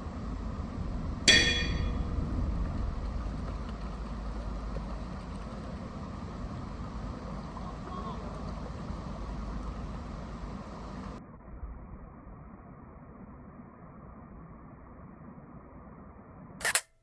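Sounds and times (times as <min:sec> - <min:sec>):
low rumble: 0:00.0 - 0:16.4
sharp metallic clink: 0:01.3 - 0:02.2, 0:16.6 - 0:16.9.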